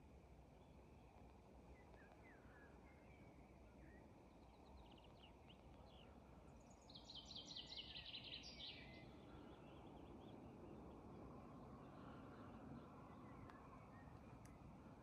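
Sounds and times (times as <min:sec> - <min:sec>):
faint birdsong: 0:00.0 - 0:15.0.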